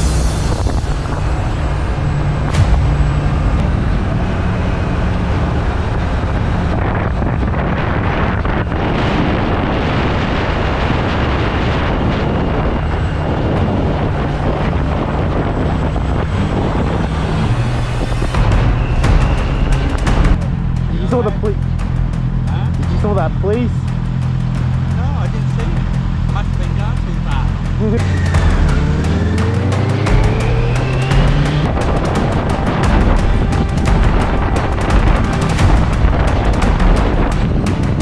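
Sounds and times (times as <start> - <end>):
motorcycle engine running: 0.0 - 38.0
wind and road noise: 0.0 - 38.0.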